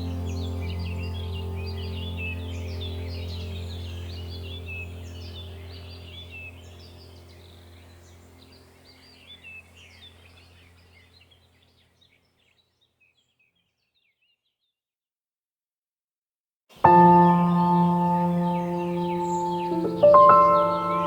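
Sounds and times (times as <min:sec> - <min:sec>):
low steady hum: 0:00.0 - 0:11.5
small birds chirping: 0:00.0 - 0:14.8, 0:16.7 - 0:21.0.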